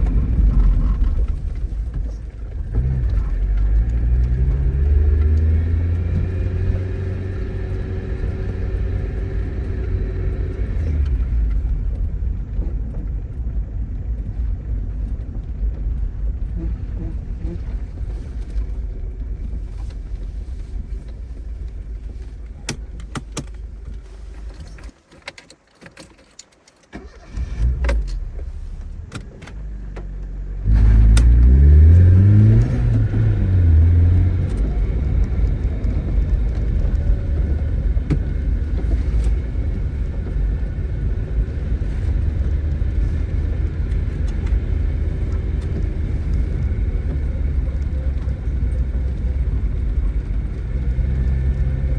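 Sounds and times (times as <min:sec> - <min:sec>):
car engine idling and revving: 0:00.0 - 0:51.9.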